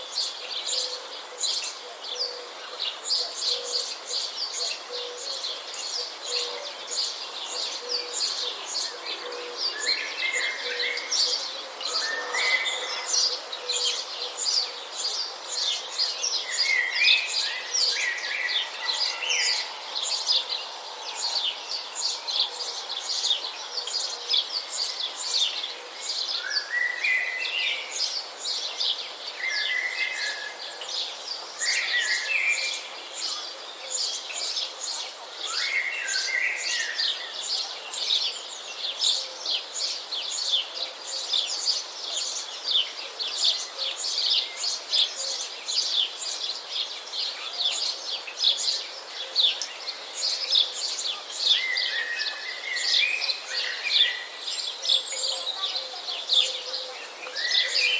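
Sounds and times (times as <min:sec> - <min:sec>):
birds chirping and singing: 0:00.2 - 0:57.9.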